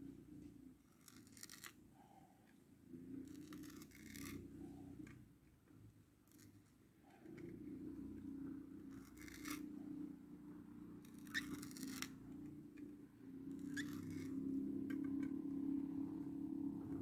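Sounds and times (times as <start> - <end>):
faint scratching: 0.0 - 17.0
low steady hum: 7.0 - 17.0.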